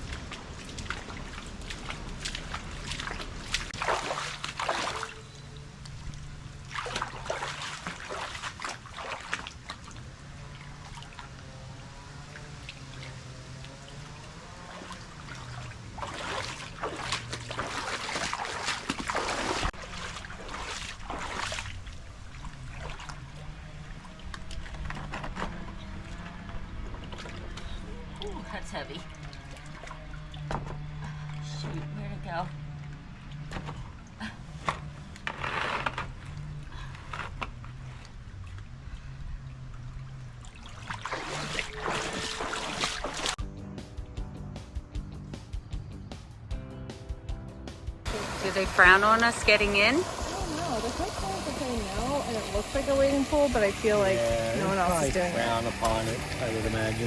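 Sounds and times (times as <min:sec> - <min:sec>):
water trickling: 0:00.0 - 0:25.2, 0:25.9 - 0:35.2, 0:48.1 - 0:57.0
water splashing and pouring: 0:00.0 - 0:26.2, 0:37.5 - 0:43.4, 0:48.1 - 0:57.0.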